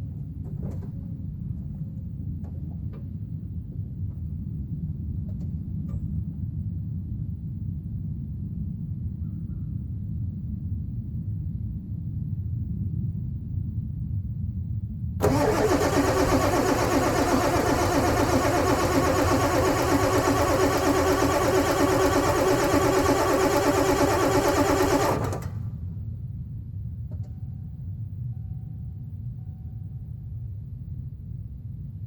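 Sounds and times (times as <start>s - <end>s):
diesel engine cranking: 15.2s - 25.8s.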